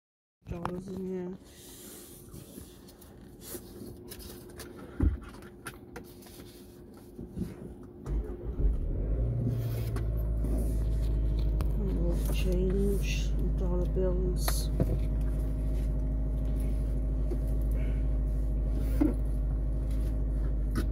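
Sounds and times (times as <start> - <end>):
car engine idling: 7.5 - 20.9
car engine cranking and starting: 7.8 - 20.9.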